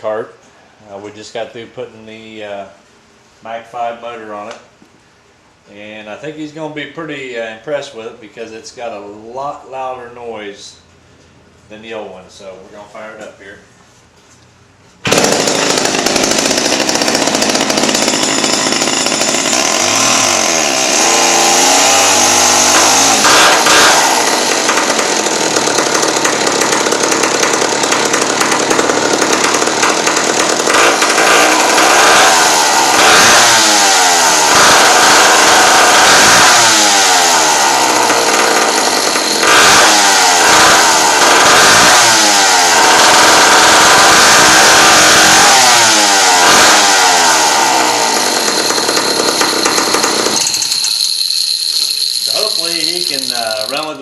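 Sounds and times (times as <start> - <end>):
go-kart engine revving: 15.0 - 53.8.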